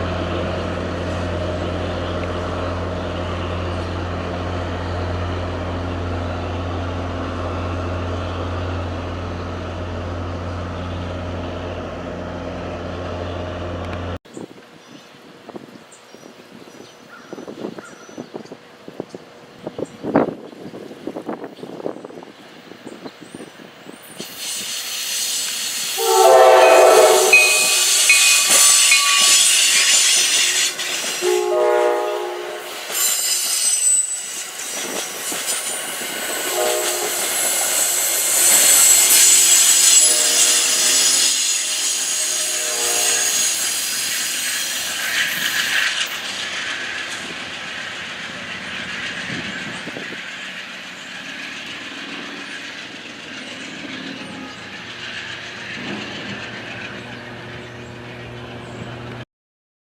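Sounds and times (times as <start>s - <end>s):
train cars rushing and clattering: 0.0s - 14.2s, 18.2s - 59.2s
train horn blasts: 25.9s - 33.0s, 36.2s - 43.7s.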